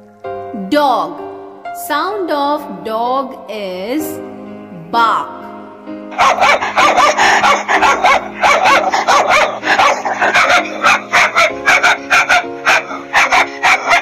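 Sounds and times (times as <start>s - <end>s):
background music: 0.0s - 14.0s
dog barking and yipping: 6.1s - 14.0s.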